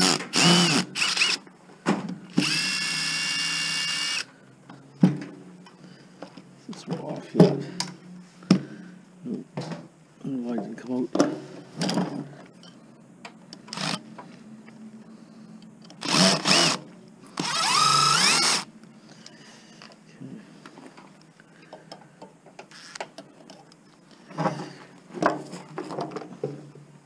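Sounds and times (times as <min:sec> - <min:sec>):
power drill spinning: 0:00.0 - 0:01.5, 0:02.3 - 0:04.3, 0:13.7 - 0:14.0, 0:16.0 - 0:16.8, 0:17.4 - 0:18.7, 0:22.7 - 0:23.0
knocks and metal clatter: 0:05.0 - 0:05.5, 0:10.5 - 0:12.4.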